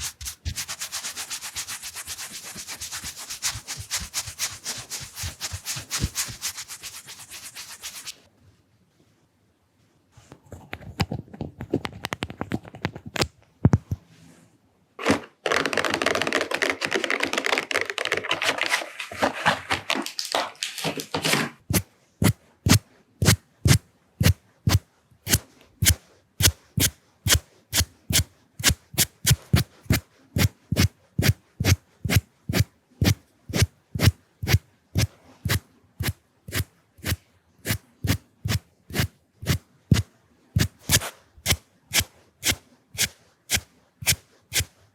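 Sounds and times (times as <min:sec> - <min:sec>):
pencils tapping on lens: 0:00.0 - 0:06.5, 0:15.0 - 0:21.5
brush scratching on lens: 0:00.0 - 0:08.3, 0:21.7 - 0:44.8.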